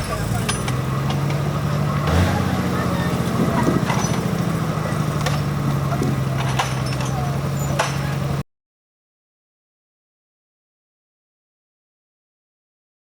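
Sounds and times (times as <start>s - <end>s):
diesel engine running: 0.0s - 8.4s
sharp knocks: 5.2s - 8.3s.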